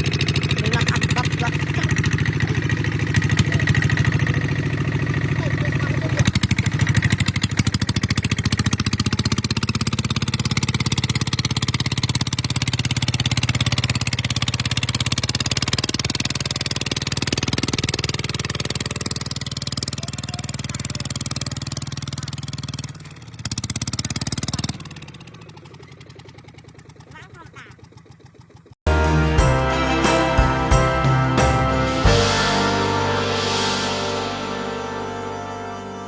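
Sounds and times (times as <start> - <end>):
diesel engine running: 0.0 - 36.0.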